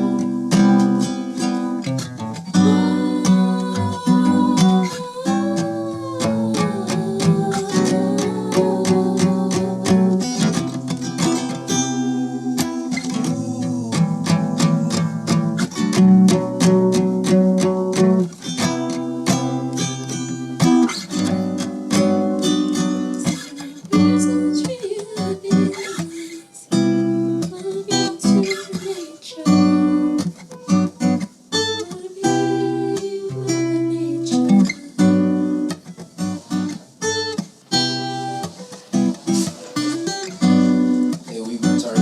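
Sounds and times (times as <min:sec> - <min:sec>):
person singing: 0:00.0 - 0:01.2, 0:02.6 - 0:16.7, 0:22.4 - 0:26.8, 0:27.4 - 0:30.2, 0:31.7 - 0:35.5
acoustic guitar strumming: 0:00.0 - 0:42.0.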